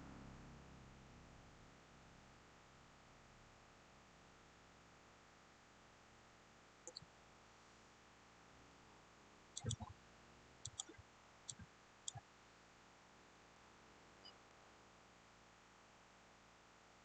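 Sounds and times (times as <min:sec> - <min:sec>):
computer mouse clicks: 0:09.6 - 0:09.9, 0:10.6 - 0:12.2.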